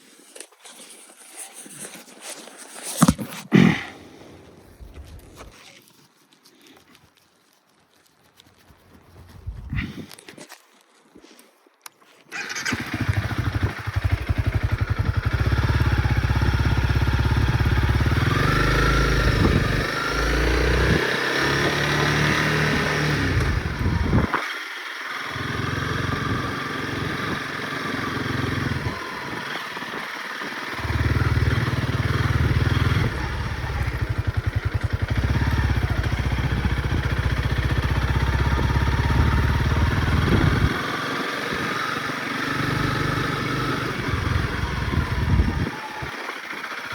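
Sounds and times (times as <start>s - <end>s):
dirt bike engine revving: 12.3s - 46.9s.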